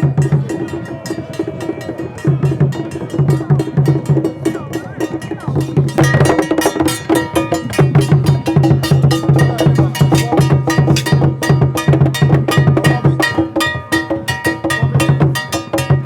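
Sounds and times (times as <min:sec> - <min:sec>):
fast percussion strikes: 0:00.0 - 0:16.0
low drum pattern: 0:00.0 - 0:16.0.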